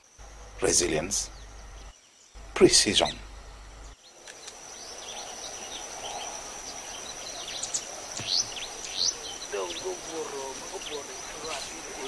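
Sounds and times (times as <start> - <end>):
insect high-pitched trill: 0.0 - 12.0
wild birds chirping: 0.0 - 12.0.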